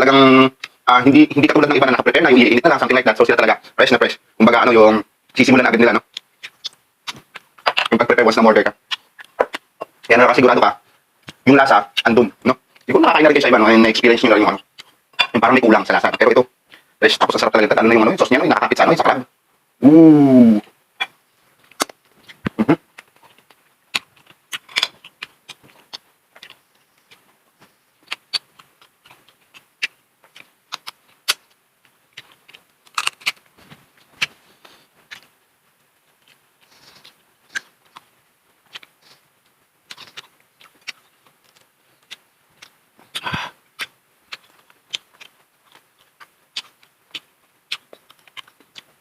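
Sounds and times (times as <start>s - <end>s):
wet chewing sounds: 6.0s - 8.0s, 8.7s - 13.0s, 14.2s - 16.9s, 21.0s - 49.0s
shell cracking and rustling: 21.0s - 35.4s, 39.8s - 49.0s.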